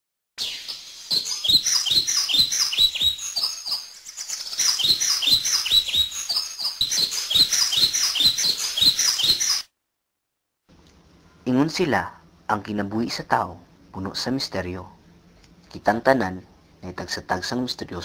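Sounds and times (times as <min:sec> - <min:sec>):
birds chirping: 0:00.4 - 0:09.7.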